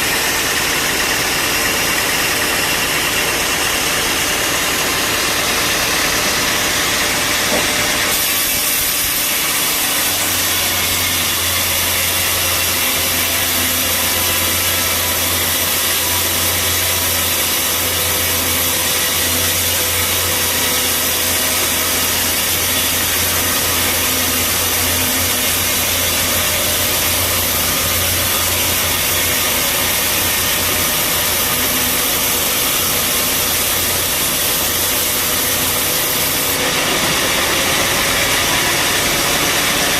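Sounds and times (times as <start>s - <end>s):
bandsaw cutting log: 0.0s - 39.9s.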